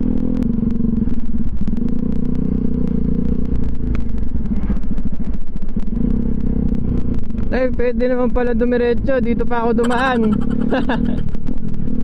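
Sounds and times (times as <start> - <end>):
motorcycle engine cruising: 0.0 - 12.0
exhaust crackles and knocks: 3.5 - 7.5.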